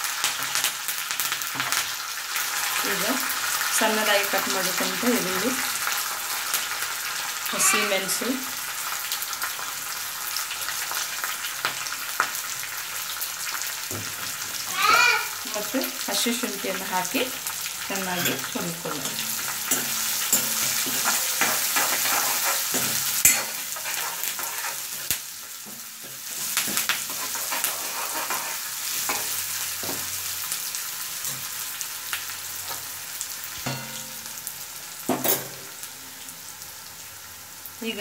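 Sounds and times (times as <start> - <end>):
vegetables sizzling in hot oil: 0.0 - 38.0
spatula scraping and clicking on pan: 18.1 - 30.1.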